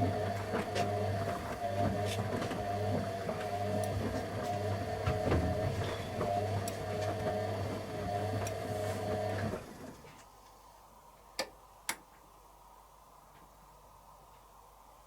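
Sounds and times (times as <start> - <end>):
washing machine motor humming: 0.0 - 10.0.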